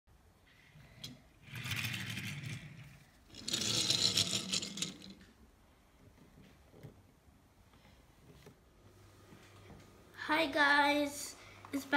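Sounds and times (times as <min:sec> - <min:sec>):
scraping rattling noise: 0:00.5 - 0:05.3.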